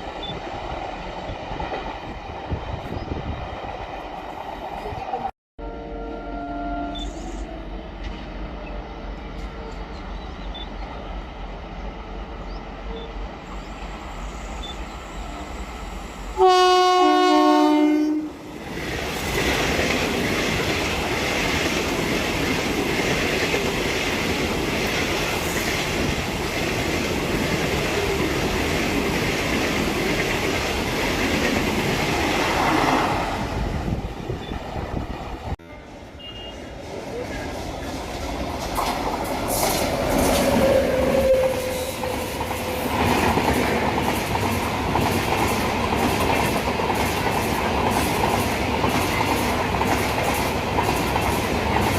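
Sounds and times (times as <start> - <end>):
train rolling on rails: 0.0 - 51.9
train horn: 5.6 - 7.8, 16.3 - 18.4, 35.6 - 36.7, 40.3 - 43.1.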